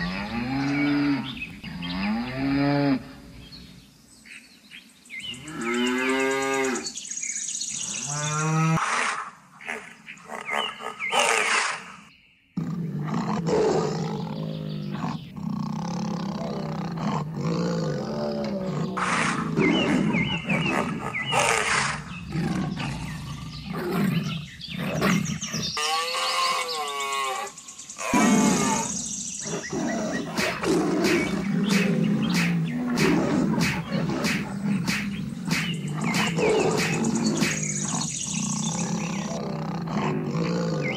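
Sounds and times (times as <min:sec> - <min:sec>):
wild animal calls: 0:08.2 - 0:40.9
big cat roars: 0:12.6 - 0:40.9.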